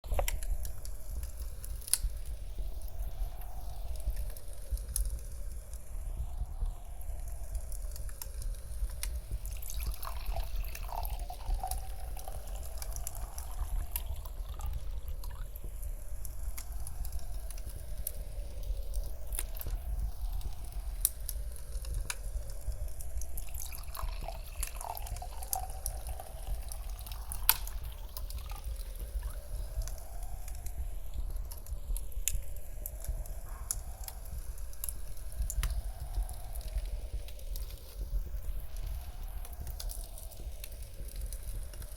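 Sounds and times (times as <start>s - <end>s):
crackling fireplace: 0.0s - 41.9s
low wind rumble: 0.0s - 41.9s
wine poured into a glass: 9.4s - 15.4s, 23.4s - 29.4s.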